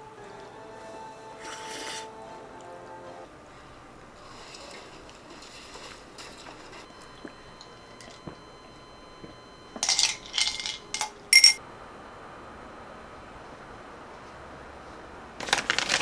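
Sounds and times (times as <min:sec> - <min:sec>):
kitchenware clinking: 0:09.8 - 0:11.6.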